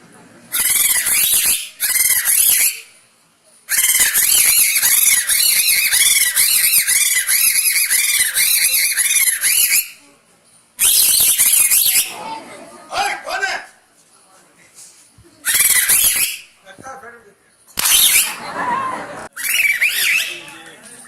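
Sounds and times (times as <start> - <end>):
shrill squeaky reed whistle: 0.5 - 3.0, 3.7 - 10.0, 10.8 - 12.1, 15.4 - 16.6, 17.8 - 18.5, 19.3 - 20.7.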